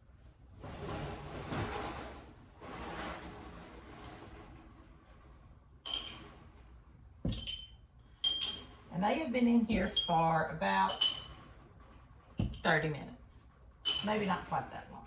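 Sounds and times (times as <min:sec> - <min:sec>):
glass jars clinking: 0:05.9 - 0:06.3, 0:07.3 - 0:08.8, 0:09.6 - 0:11.5, 0:12.4 - 0:12.7, 0:13.8 - 0:14.3.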